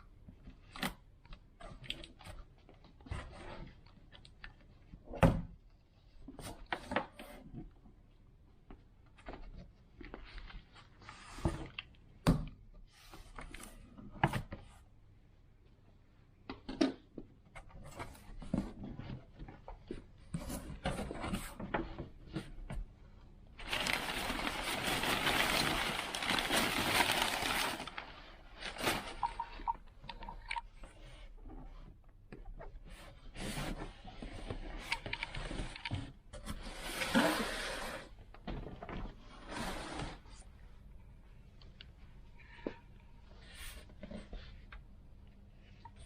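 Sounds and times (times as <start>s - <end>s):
packaging rustling: 23.6s - 29.8s.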